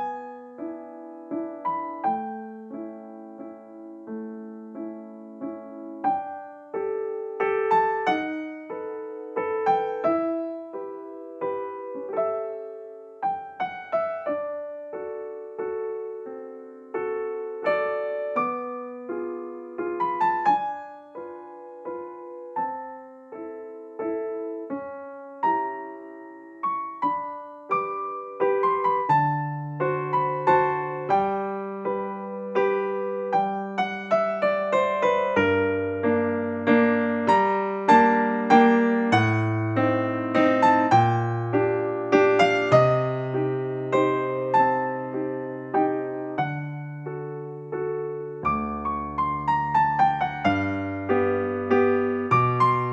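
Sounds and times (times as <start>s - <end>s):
soft piano music: 0.0s - 52.9s.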